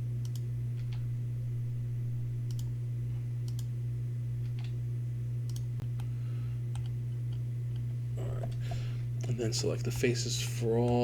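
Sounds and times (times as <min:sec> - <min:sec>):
low electrical hum: 0:00.0 - 0:11.0
computer mouse clicking: 0:00.2 - 0:01.0, 0:02.5 - 0:02.7, 0:03.4 - 0:03.7, 0:05.5 - 0:06.1, 0:06.7 - 0:07.9.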